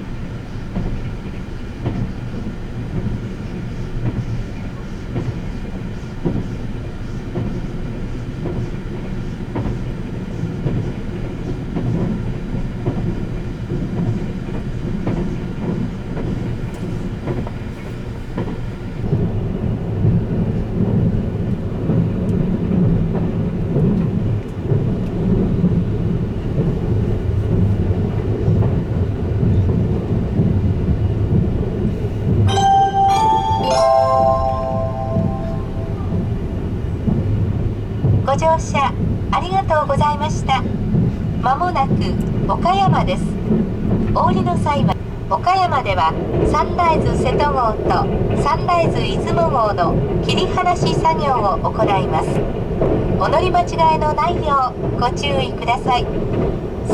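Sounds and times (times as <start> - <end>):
train wheels rumbling on rails: 0.0 - 56.9
on-board chime: 32.5 - 36.2.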